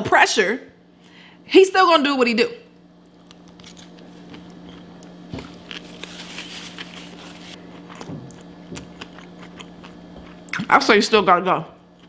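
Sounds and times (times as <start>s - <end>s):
steady low hum: 0.0s - 12.0s
person chewing food: 3.0s - 10.6s.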